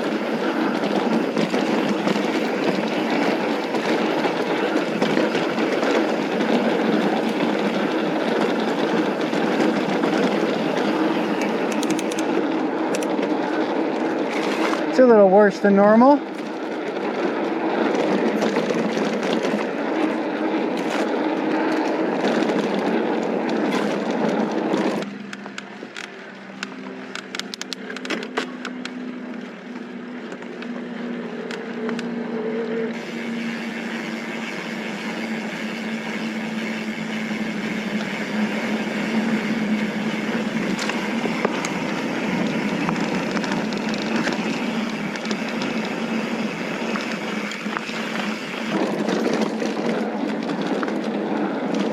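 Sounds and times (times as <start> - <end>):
bike clicks and rattles: 0.0 - 51.9
bike tyres rolling over dirt: 0.0 - 51.9
wind rushing over microphone: 29.9 - 51.9.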